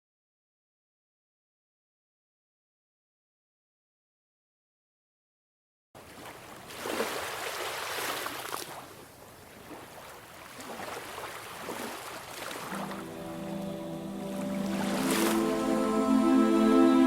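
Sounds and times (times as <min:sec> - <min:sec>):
rushing water: 0:06.0 - 0:17.0.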